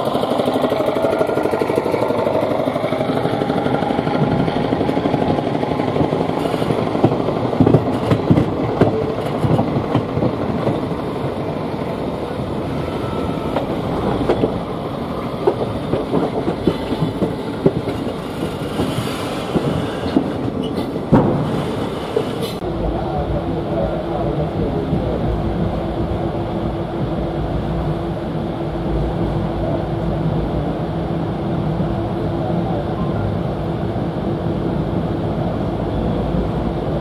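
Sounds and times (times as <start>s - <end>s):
train coaches rumbling: 0.0s - 37.0s.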